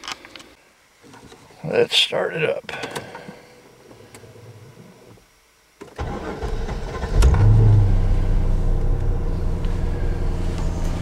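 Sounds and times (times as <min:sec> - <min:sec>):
car engine starting and idling: 0:05.9 - 0:11.0.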